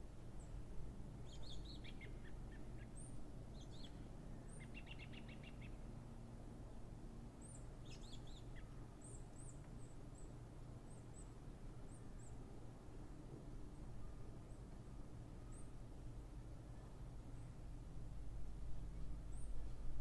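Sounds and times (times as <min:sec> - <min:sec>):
low background rumble: 0:00.0 - 0:20.0
songbirds chirping: 0:00.3 - 0:06.0, 0:07.2 - 0:12.6.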